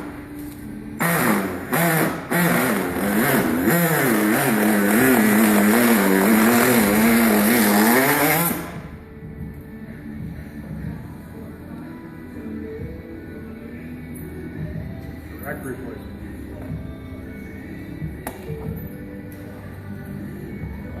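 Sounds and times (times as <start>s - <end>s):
engine running with wavering pitch: 0.0s - 9.6s.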